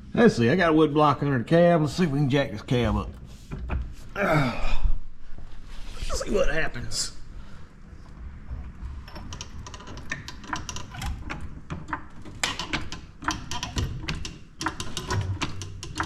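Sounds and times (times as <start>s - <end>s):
jack clicking: 9.1s - 16.0s.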